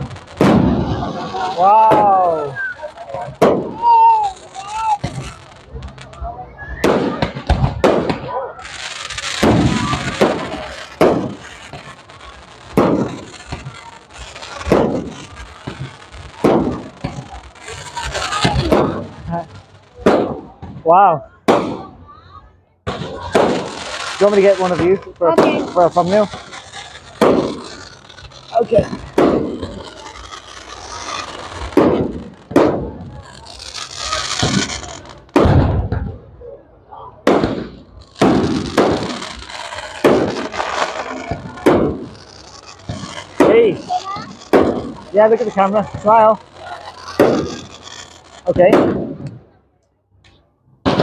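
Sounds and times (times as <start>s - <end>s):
fireworks bursting: 0.0s - 51.0s.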